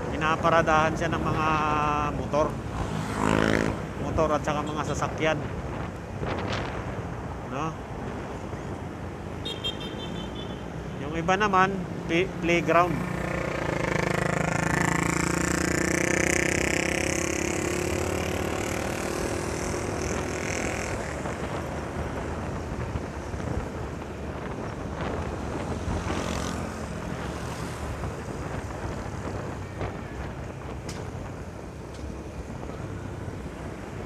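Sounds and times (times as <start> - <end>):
wind and road rush: 0.0 - 34.0
motorcycle engine: 12.8 - 22.2.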